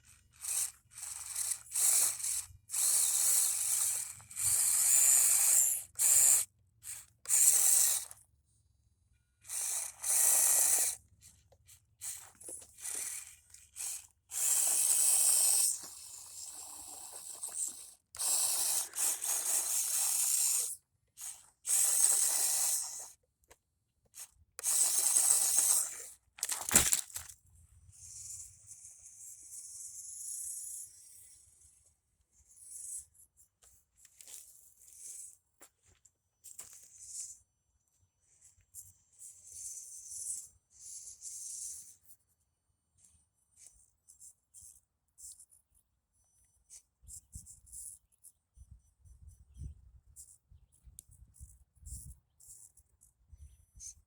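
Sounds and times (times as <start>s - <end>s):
small electric motor whirring: 0.0s - 8.3s, 9.4s - 23.2s, 24.0s - 35.4s, 36.4s - 37.4s, 38.4s - 42.2s, 49.5s - 54.0s.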